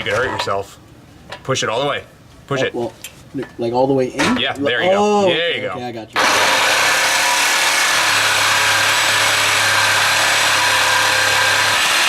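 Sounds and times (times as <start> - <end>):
reciprocating saw cutting metal pipe: 6.2 - 12.0.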